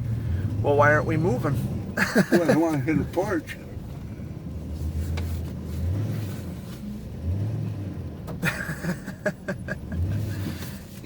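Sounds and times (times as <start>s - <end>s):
pickup truck engine revving: 3.9s - 10.7s.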